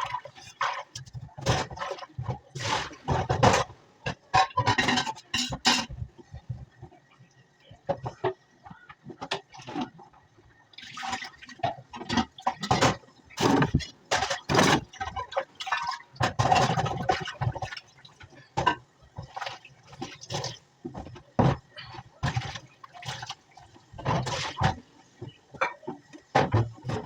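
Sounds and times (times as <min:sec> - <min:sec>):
water splashing and pouring: 0:10.8 - 0:20.6, 0:22.2 - 0:24.8.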